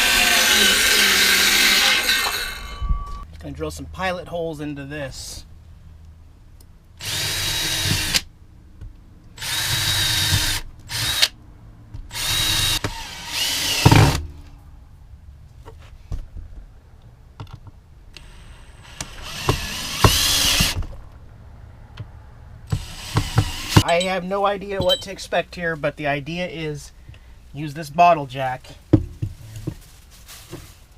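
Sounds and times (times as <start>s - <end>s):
power drill boring into wood: 0.0s - 2.8s, 7.0s - 8.2s, 9.4s - 11.3s, 12.1s - 14.2s, 18.2s - 20.9s, 22.7s - 23.8s.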